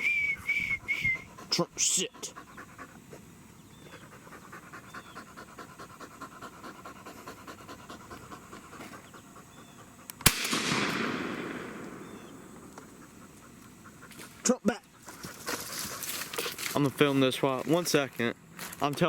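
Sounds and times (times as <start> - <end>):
dog panting: 0.4 - 10.2, 11.8 - 16.6
shotgun shot: 10.2 - 13.0.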